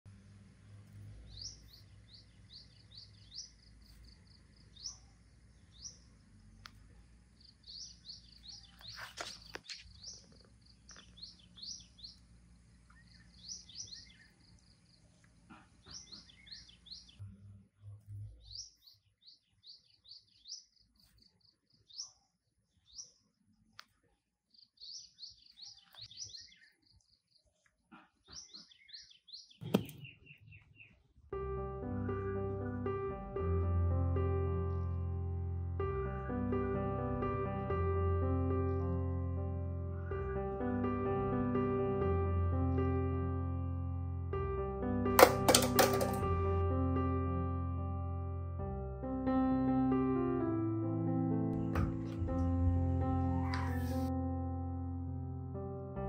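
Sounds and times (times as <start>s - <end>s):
small birds chirping: 0.1s - 31.3s, 39.8s - 40.8s, 51.6s - 54.1s.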